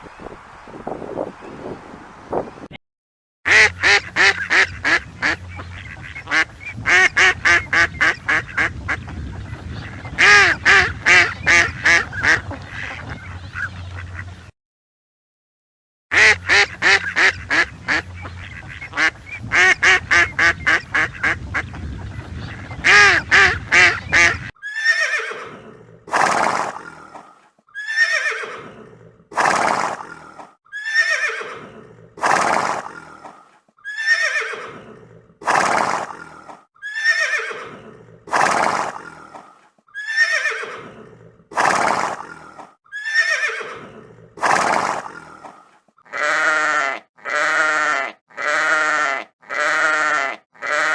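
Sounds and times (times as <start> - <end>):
duck quacking: 3.5 - 9.0, 10.2 - 13.1, 16.1 - 21.4, 46.1 - 50.9
horse whinnying: 24.6 - 50.9.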